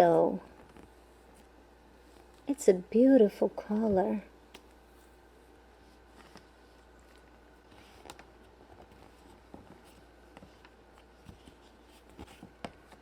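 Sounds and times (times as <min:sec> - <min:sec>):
low steady hum: 0:00.0 - 0:13.0
hands handling modelling clay: 0:03.6 - 0:13.0.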